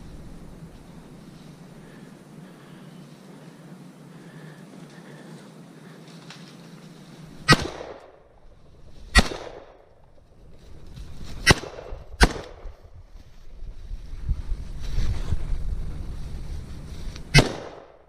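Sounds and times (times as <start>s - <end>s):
rifle shots with echo: 7.4s - 8.3s, 9.1s - 9.9s, 11.4s - 12.7s, 17.4s - 18.0s.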